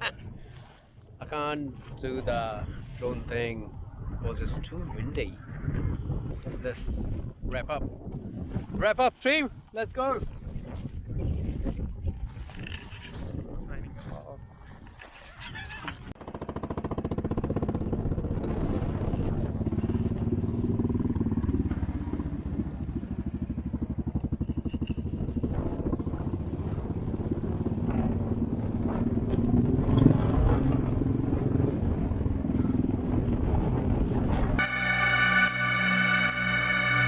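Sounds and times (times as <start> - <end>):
motorcycle engine running: 16.2 - 35.0.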